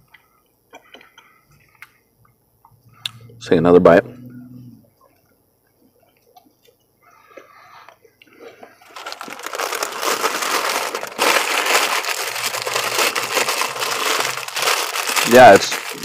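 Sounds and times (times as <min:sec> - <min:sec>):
chewing crunchy food: 0:05.0 - 0:16.0
loud rustling noise: 0:08.8 - 0:16.0.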